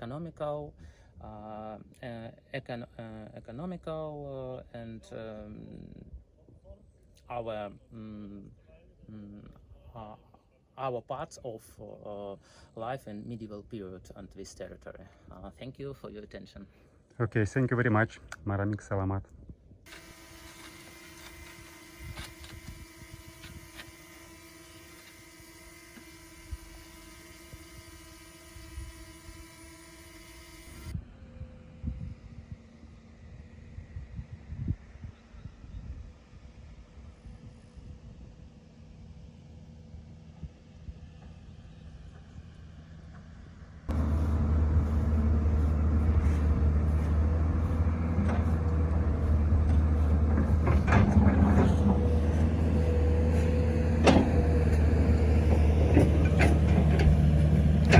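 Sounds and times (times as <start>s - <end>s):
mechanical hum with constant tones: 0.0s - 16.2s, 19.5s - 57.9s
low rumbles and knocks: 43.9s - 57.9s.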